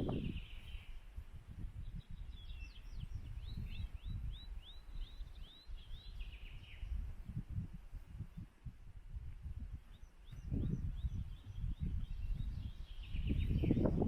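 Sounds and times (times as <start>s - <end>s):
songbird singing high notes: 10.0s - 14.0s.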